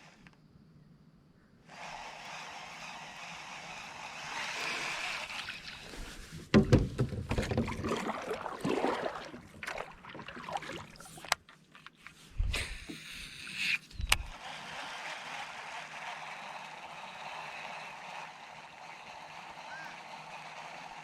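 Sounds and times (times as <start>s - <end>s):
sharp clicks and thumps: 6.4s - 7.8s, 13.7s - 14.4s
knocks and thuds against hull: 6.4s - 8.2s.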